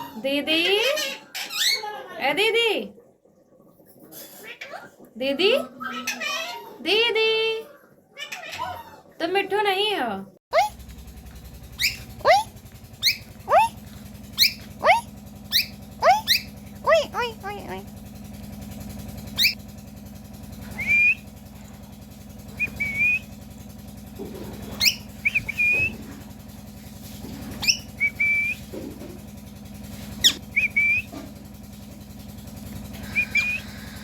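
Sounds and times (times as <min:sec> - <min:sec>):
parrot chirps: 0:10.5 - 0:10.7, 0:11.8 - 0:13.8, 0:14.4 - 0:17.6, 0:19.4 - 0:19.6, 0:20.8 - 0:21.2, 0:22.6 - 0:23.2, 0:24.8 - 0:26.0, 0:27.6 - 0:28.6, 0:30.2 - 0:31.1, 0:33.0 - 0:33.8
parrot whistling: 0:11.8 - 0:13.8, 0:14.4 - 0:17.4, 0:19.4 - 0:19.6, 0:20.8 - 0:21.2, 0:22.6 - 0:23.3, 0:24.8 - 0:26.0, 0:27.6 - 0:28.6, 0:30.2 - 0:31.1, 0:33.0 - 0:33.8.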